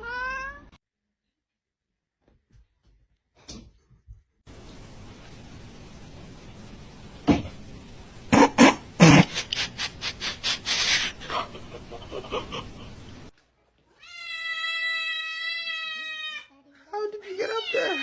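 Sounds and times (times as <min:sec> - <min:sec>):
steady hiss: 0:04.5 - 0:13.3.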